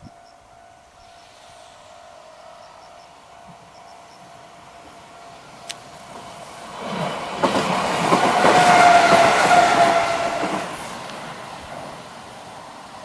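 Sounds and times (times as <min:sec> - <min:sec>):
train wheels clacking over rail joints: 0:06.1 - 0:11.9.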